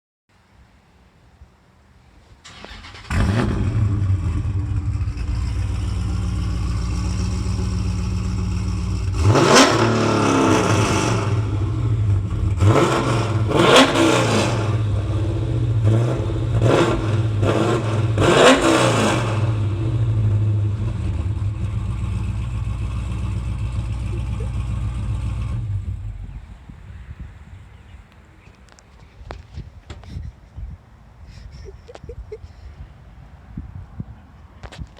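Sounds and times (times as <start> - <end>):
engine idling and revving: 2.5 - 26.6.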